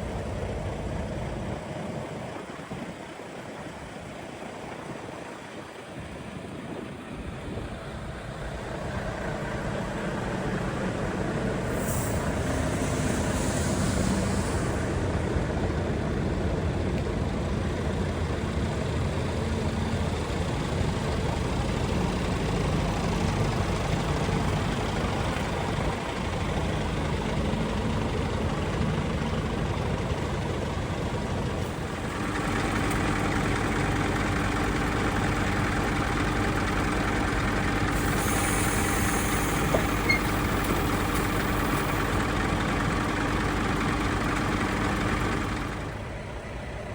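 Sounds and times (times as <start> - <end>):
truck diesel engine idling: 0.0 - 46.9
air hiss: 10.0 - 16.0, 37.7 - 43.2.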